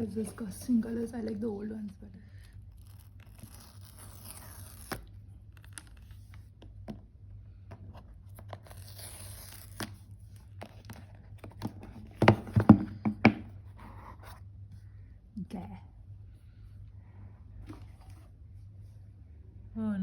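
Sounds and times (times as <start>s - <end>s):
paper packaging tearing: 2.7s - 6.3s, 8.4s - 10.0s
box knocking: 12.0s - 13.6s.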